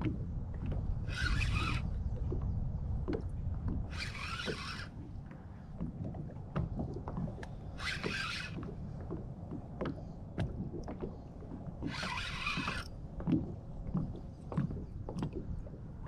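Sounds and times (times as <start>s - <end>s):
fishing reel whirring: 1.0s - 1.9s, 3.9s - 5.0s, 7.8s - 8.7s, 11.8s - 12.9s.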